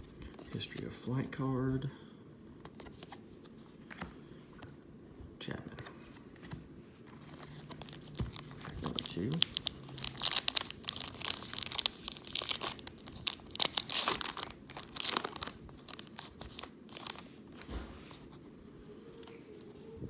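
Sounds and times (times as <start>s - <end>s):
wrapper tearing and crinkling: 7.2s - 17.3s.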